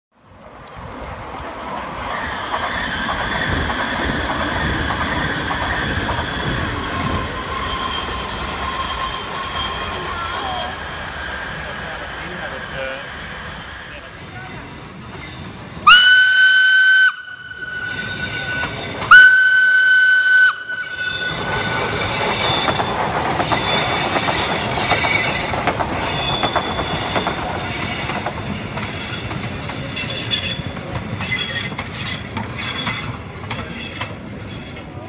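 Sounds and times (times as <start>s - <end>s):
trains rumbling past: 0.2s - 35.0s
faint high squeals: 5.2s - 11.9s, 17.2s - 19.1s, 20.6s - 24.1s
steam locomotive whistle: 15.8s - 24.2s.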